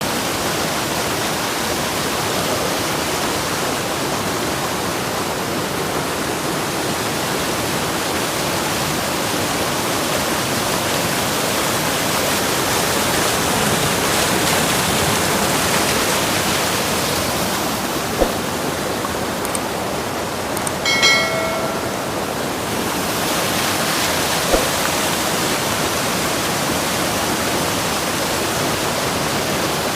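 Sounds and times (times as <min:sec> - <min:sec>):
brief knock: 0:18.2 - 0:18.4, 0:24.5 - 0:24.8.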